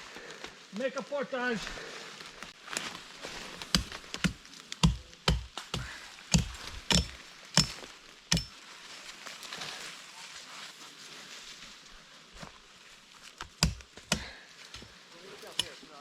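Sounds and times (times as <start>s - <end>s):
sharp woody chops of brush: 3.6s - 8.5s, 13.4s - 14.4s, 15.6s - 15.8s.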